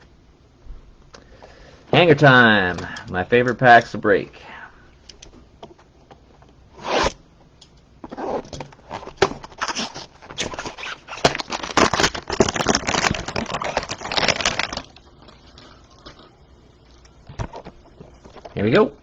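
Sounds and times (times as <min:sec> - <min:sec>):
plastic wrapper ripping: 0:08.0 - 0:16.3
plastic wrapper crinkling: 0:08.0 - 0:18.8.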